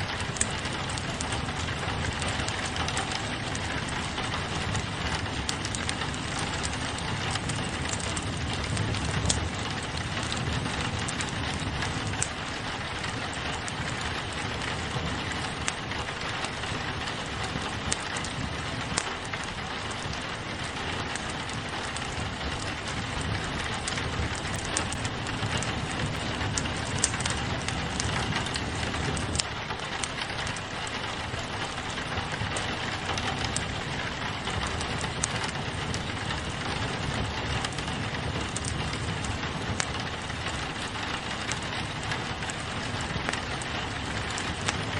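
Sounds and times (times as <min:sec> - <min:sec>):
fire pops: 0:00.0 - 0:44.9
rain on a window: 0:00.0 - 0:44.9
wood fire crackling: 0:00.0 - 0:44.9.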